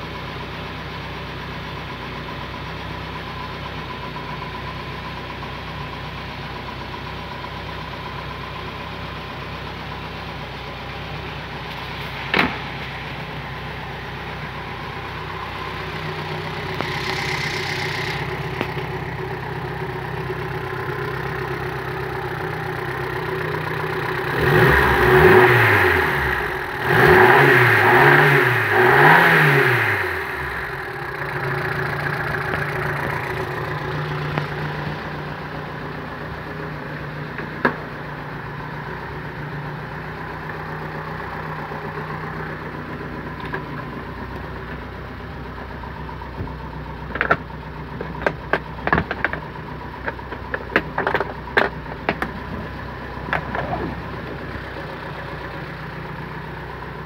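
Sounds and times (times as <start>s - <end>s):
car engine idling: 0.0s - 57.0s
engine revving: 15.1s - 19.0s, 23.2s - 37.2s.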